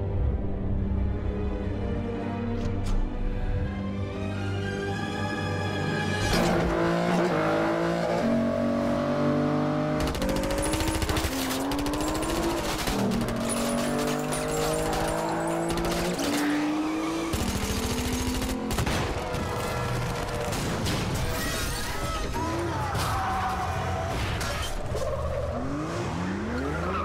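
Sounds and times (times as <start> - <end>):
high-revving car engine: 6.3 - 20.5
gunfire bursts: 10.0 - 13.9, 17.3 - 20.8.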